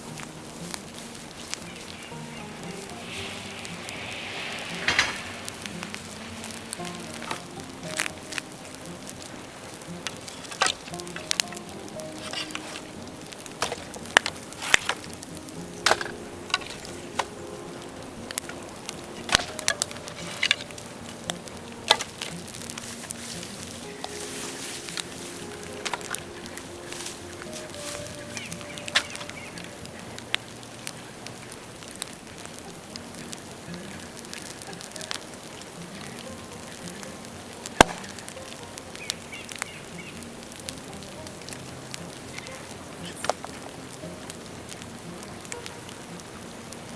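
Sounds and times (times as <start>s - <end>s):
bamboo fire crackling and popping: 0.0s - 46.9s
bamboo bursting with loud bang: 37.8s - 38.2s.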